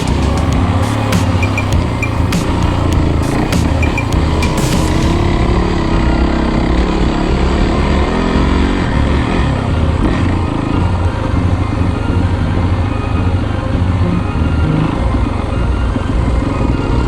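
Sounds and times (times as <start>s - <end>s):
dirt bike engine revving: 0.0s - 11.1s.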